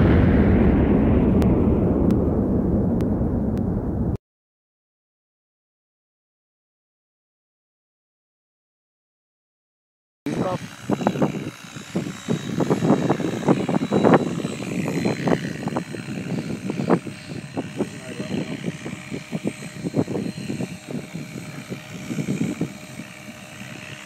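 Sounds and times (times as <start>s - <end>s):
low buffeting: 0.0s - 4.2s
rc helicopter rotor whine: 10.3s - 24.0s.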